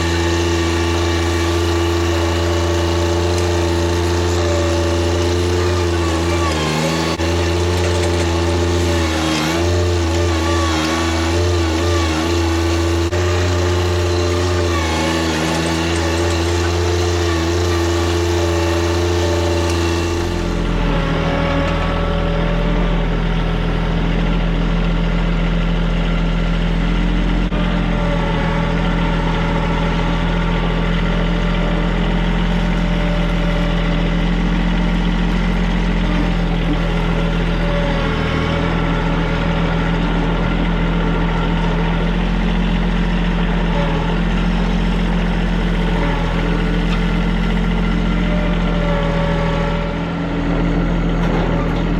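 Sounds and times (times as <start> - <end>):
tractor diesel engine running: 0.0 - 51.9.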